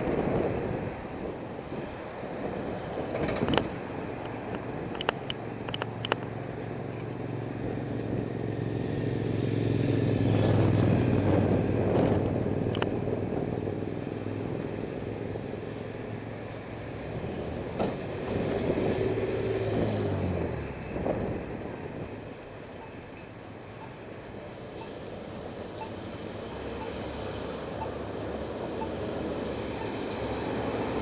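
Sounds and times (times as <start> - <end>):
sharp clicks: 0.0 - 31.0
vehicle engine passing by: 7.1 - 15.4, 17.0 - 21.8, 25.8 - 31.0.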